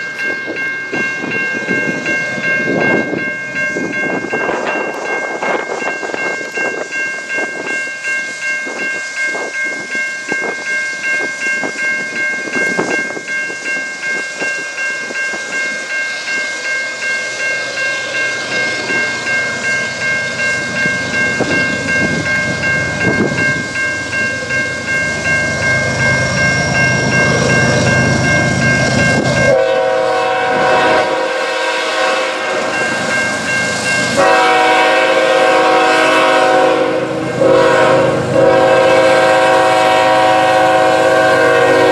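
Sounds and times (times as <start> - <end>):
high-pitched ringing: 0.0 - 31.2, 31.9 - 36.9
locomotive horn: 29.2 - 33.1, 34.0 - 41.9.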